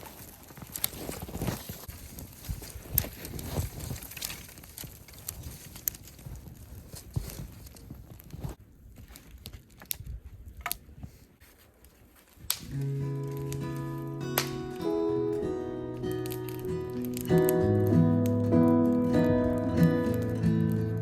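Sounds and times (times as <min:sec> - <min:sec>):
footsteps crunching in snow: 0:00.0 - 0:09.5
sharp snaps: 0:12.4 - 0:21.0.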